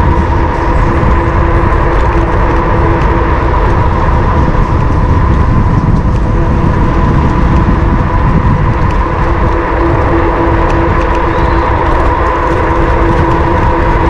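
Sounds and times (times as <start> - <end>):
electric bike motor whine: 0.0 - 14.0
wind buffeting microphone: 0.0 - 14.0.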